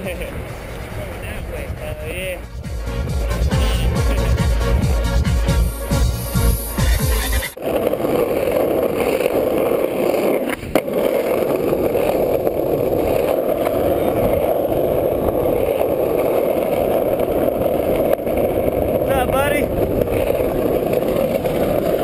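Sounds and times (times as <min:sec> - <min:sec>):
skateboard wheels rolling: 0:00.0 - 0:22.0
skateboard clack: 0:07.6 - 0:22.0.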